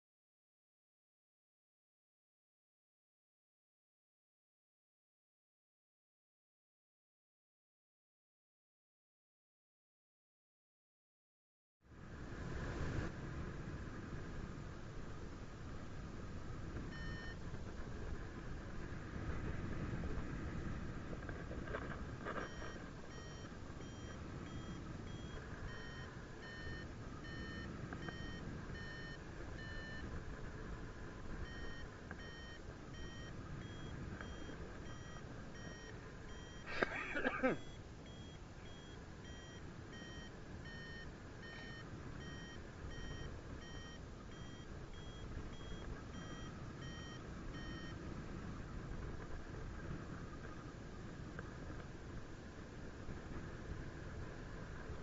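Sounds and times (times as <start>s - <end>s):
steady wind noise: 11.9s - 55.0s
variometer beeping in short pulses: 16.9s - 17.4s, 22.4s - 30.1s, 31.4s - 36.7s, 37.3s - 47.9s.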